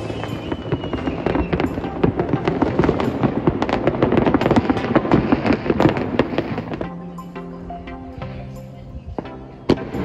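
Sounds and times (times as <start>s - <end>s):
fireworks crackling and banging: 0.0s - 7.3s.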